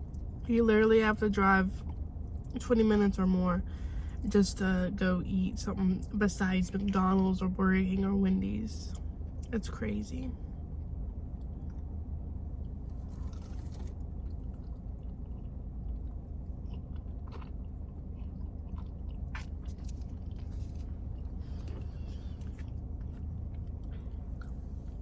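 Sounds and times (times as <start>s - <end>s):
low hum: 0.0s - 25.0s
person chewing food: 12.9s - 25.0s.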